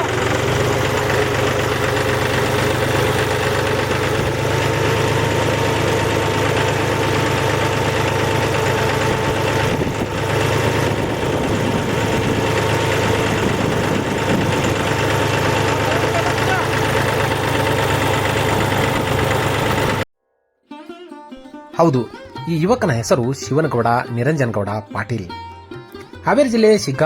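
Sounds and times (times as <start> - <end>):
tractor engine running: 0.0 - 20.1.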